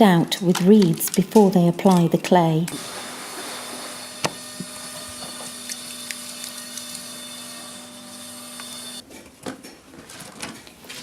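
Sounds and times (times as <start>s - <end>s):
machine hum: 2.7s - 9.0s.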